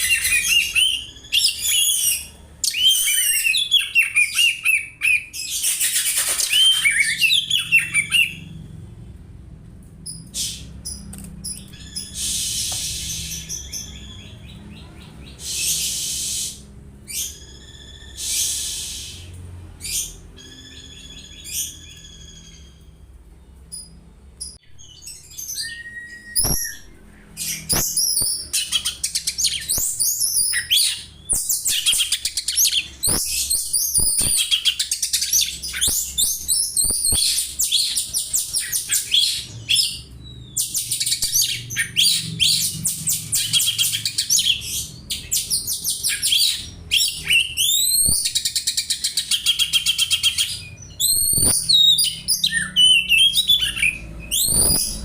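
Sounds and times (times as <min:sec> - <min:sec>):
bird whistle: 0:00.0 - 0:08.6, 0:15.4 - 0:19.3, 0:25.0 - 0:55.0
bird chirping and trilling: 0:00.0 - 0:09.0, 0:10.0 - 0:55.0.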